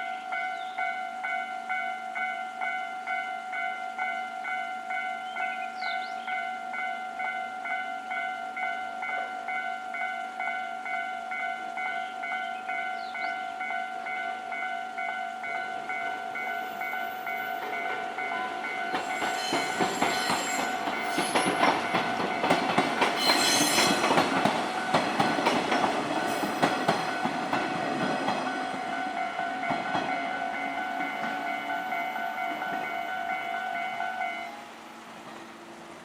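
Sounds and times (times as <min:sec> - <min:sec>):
level-crossing bell ringing: 0:06.4 - 0:22.6, 0:26.2 - 0:34.6
train wheels clattering over rail joints: 0:17.2 - 0:31.4.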